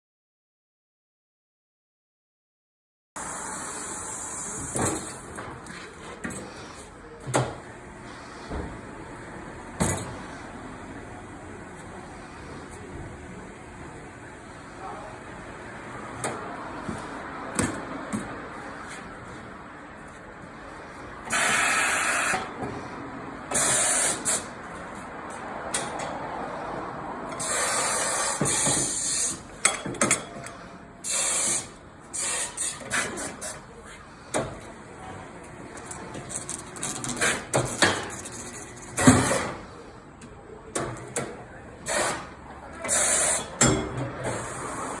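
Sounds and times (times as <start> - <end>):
compressed air hissing: 23.5 - 24.5, 31.0 - 33.4.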